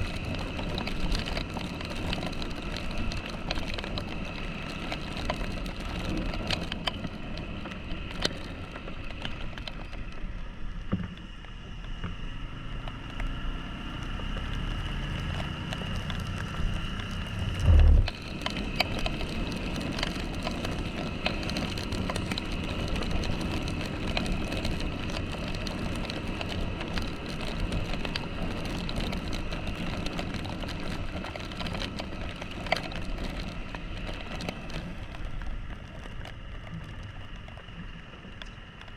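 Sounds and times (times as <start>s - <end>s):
motorcycle engine running: 10.3s - 38.3s
loud low thump: 17.6s - 18.1s.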